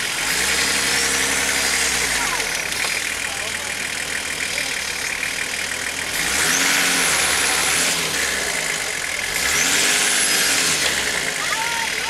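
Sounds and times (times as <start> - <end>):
engine revving with whine: 0.0 - 3.0, 5.8 - 12.0.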